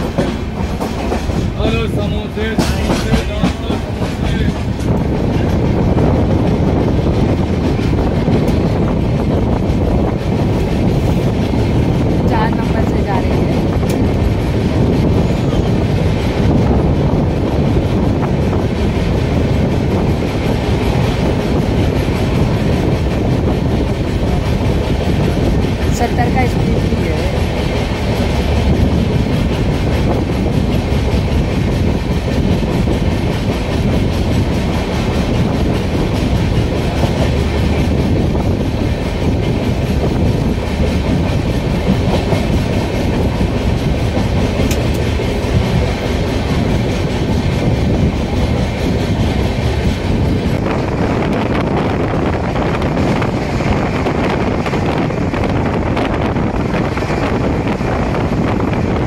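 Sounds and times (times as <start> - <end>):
train wheels on rails: 0.0 - 59.0.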